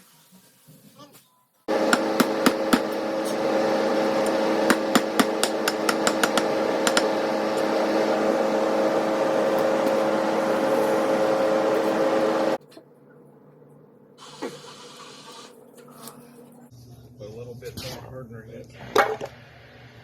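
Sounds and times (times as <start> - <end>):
machine humming: 1.7 - 12.6.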